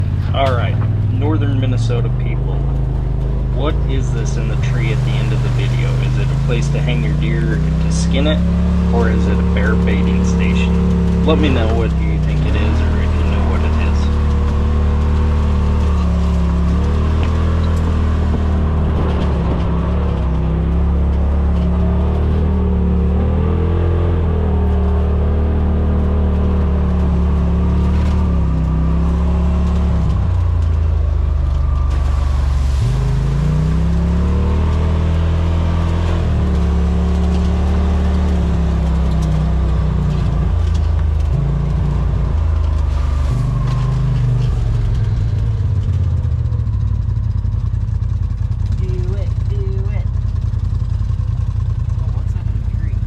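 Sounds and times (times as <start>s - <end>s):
utility vehicle engine running: 0.0s - 53.0s.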